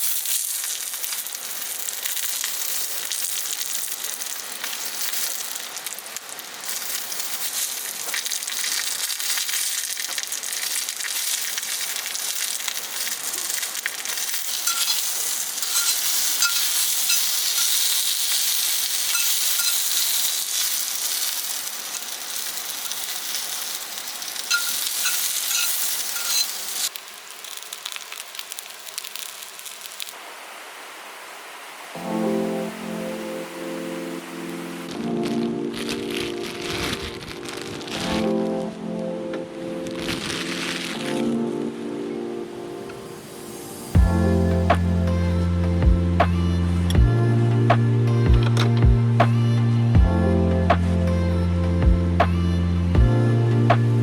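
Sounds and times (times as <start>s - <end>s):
food sizzling in a pan: 0.0s - 38.4s, 39.8s - 41.4s, 42.5s - 45.6s.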